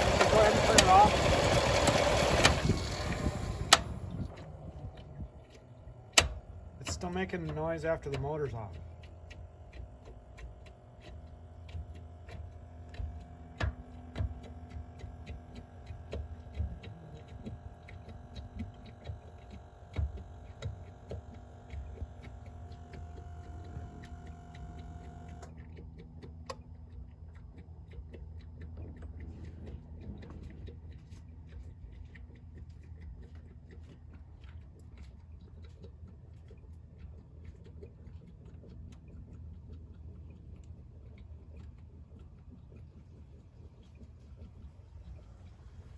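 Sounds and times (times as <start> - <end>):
steady hum: 0.0 - 25.7
engine ticking: 0.0 - 26.9.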